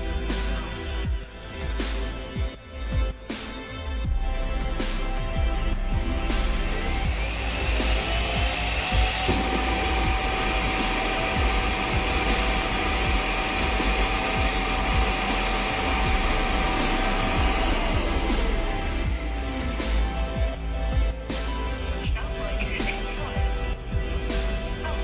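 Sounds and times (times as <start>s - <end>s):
electronic background music: 0.0s - 25.0s.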